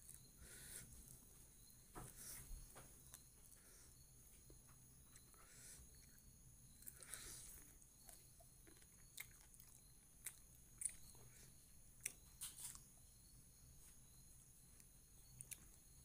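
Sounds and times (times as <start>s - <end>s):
person chewing and lip smacking: 4.5s - 11.4s, 12.0s - 12.9s, 14.8s - 16.0s.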